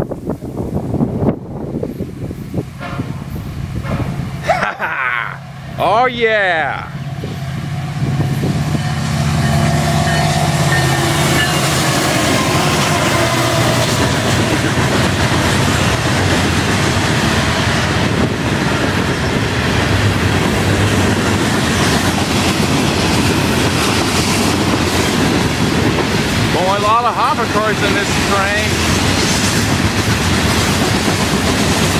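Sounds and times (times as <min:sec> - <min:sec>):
locomotive engine drone: 0:02.2 - 0:31.9
freight car wheels clacking on rails: 0:13.4 - 0:31.9.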